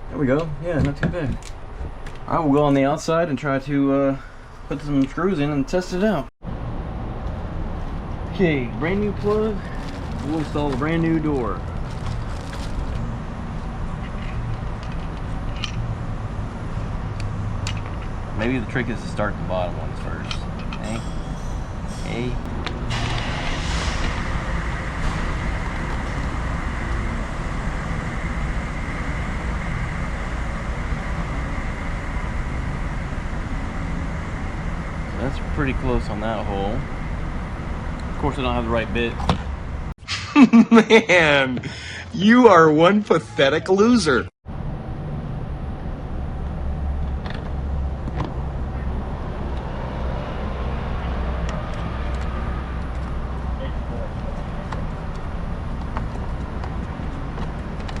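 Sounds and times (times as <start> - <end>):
low mechanical rumble with hiss: 7.8 - 39.9.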